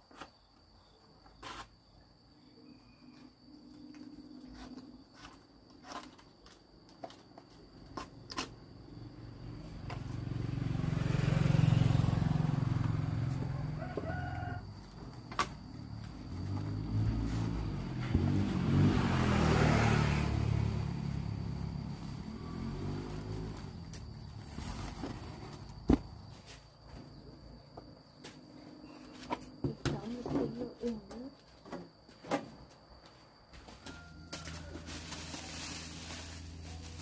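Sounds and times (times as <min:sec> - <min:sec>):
motor vehicles passing: 0:08.9 - 0:28.9
rooster crowing: 0:13.0 - 0:15.0, 0:33.6 - 0:35.6.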